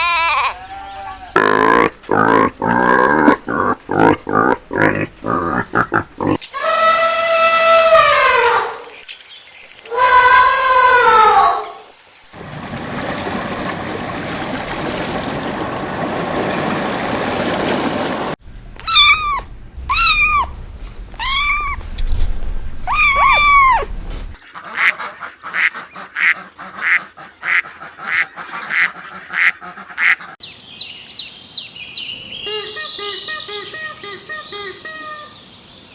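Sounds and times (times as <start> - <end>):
short animal calls: 1.4 - 7.0
rising and falling animal calls: 1.4 - 8.8, 22.9 - 23.9.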